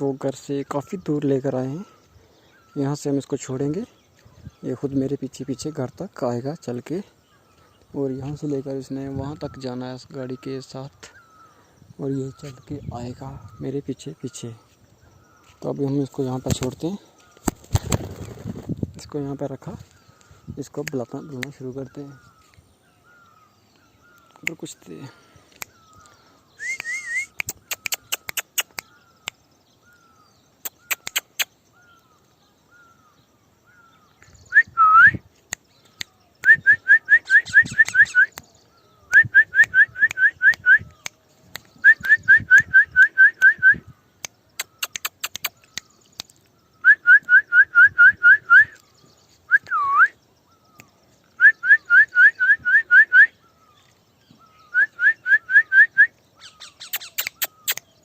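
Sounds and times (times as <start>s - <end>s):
faint chirps and clicks: 0.0s - 58.0s
person whistling: 26.6s - 28.0s, 34.5s - 35.2s, 36.4s - 38.4s, 49.5s - 50.1s.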